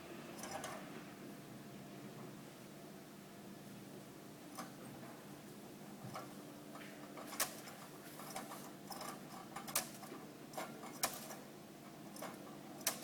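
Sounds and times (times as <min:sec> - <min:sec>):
canary clicking and tapping in cage: 0:12.1 - 0:13.0.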